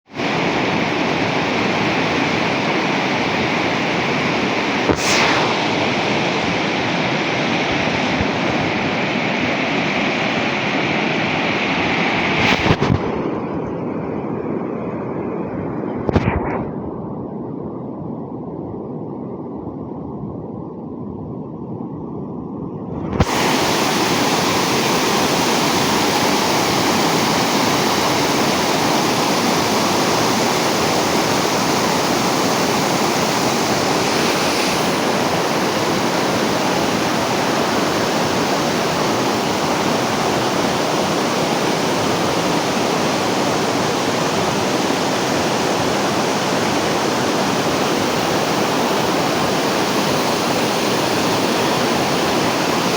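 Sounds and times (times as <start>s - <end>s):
water rushing: 23.0s - 52.9s.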